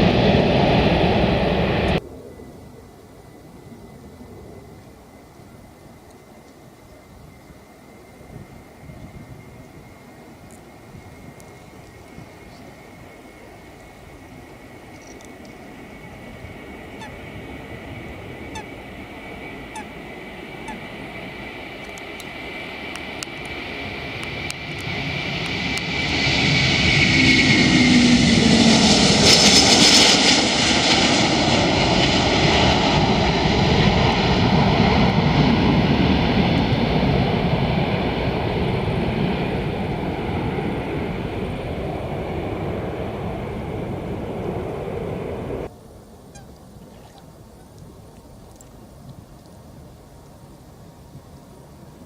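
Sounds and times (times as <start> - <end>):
jet airliner taking off: 0.0 - 45.7.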